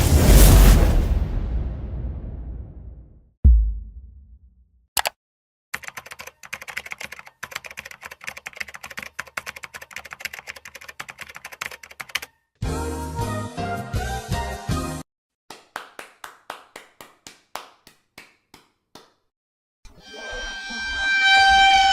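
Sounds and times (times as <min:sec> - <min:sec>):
fast typing on computer keyboard: 0:05.8 - 0:12.4.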